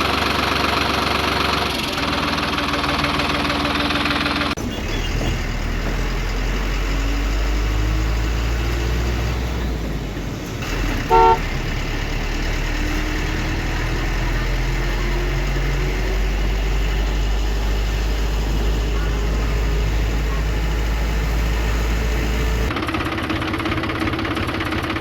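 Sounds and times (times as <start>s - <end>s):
truck engine rumbling: 0.0s - 25.0s
short horn toot: 11.1s - 11.5s.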